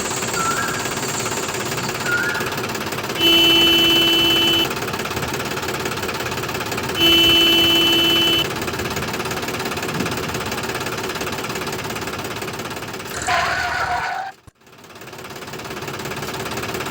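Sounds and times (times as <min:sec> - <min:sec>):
small engine knocking rattle: 0:00.0 - 0:13.2, 0:14.6 - 0:16.9
horn beeps: 0:03.2 - 0:04.8, 0:07.0 - 0:08.5.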